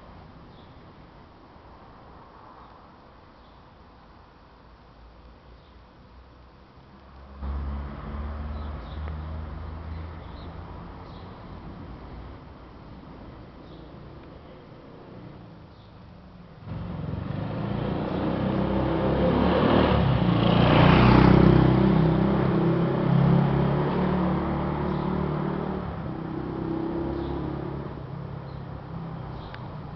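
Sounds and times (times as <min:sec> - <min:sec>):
motor vehicle engine: 0:07.2 - 0:15.8, 0:16.6 - 0:29.9.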